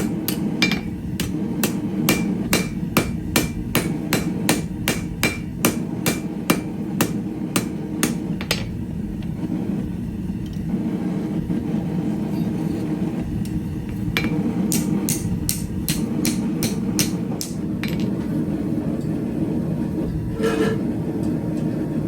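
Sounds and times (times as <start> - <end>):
hammer striking steel on anvil: 0.0 - 8.8, 14.2 - 18.1.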